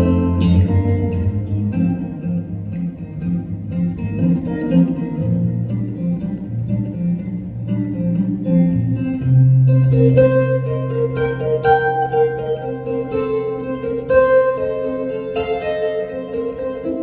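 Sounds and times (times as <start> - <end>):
bass line: 0.0 - 13.2
guitar: 0.0 - 17.0.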